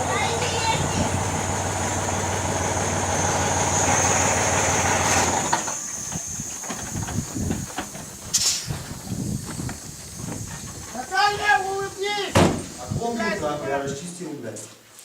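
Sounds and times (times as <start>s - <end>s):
vehicle engine whining: 0.0s - 8.3s
short hissing burst: 3.2s - 13.0s.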